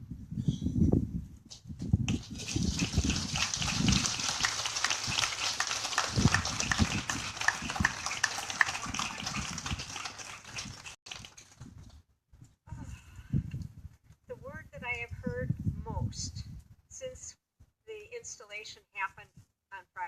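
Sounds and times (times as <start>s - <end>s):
wind rumbling on microphone: 0.0s - 17.3s
crowd applauding: 2.1s - 11.6s.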